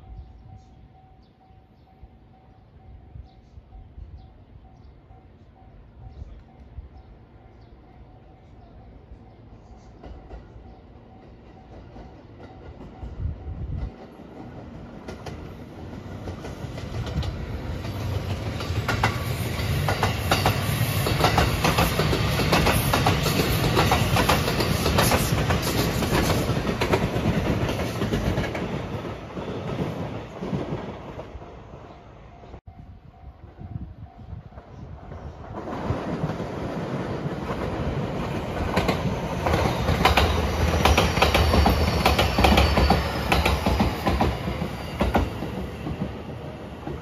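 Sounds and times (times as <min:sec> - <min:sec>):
electric train passing: 0:00.0 - 0:47.0
wheels clacking over rail joints: 0:35.6 - 0:47.0.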